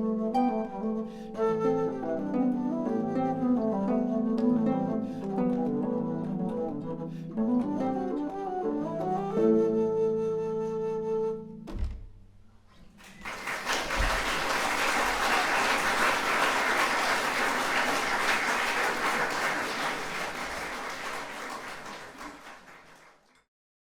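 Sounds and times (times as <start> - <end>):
audience applause: 13.0 - 23.4.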